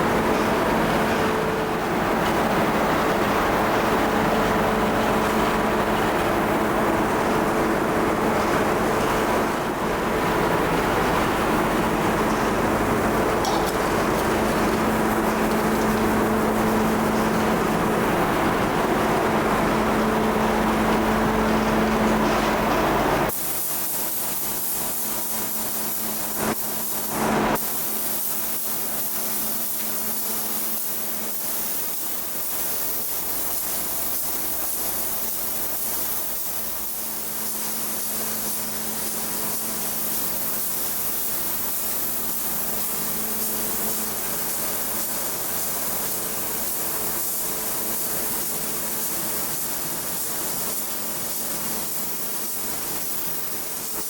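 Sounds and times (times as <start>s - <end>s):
humming machine noise: 0.0s - 31.4s
steady hissing noise: 23.0s - 54.0s.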